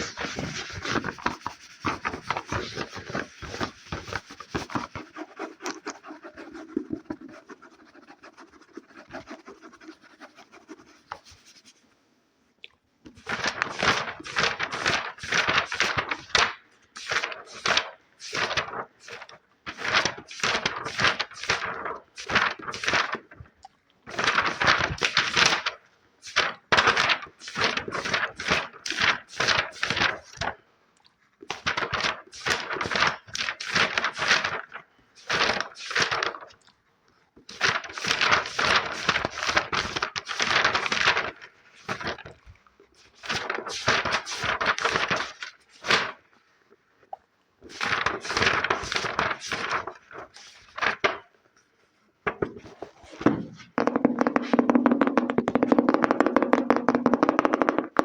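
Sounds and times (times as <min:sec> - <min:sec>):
rapid tapping and scratching: 0:00.0 - 0:11.7, 0:52.3 - 0:58.0.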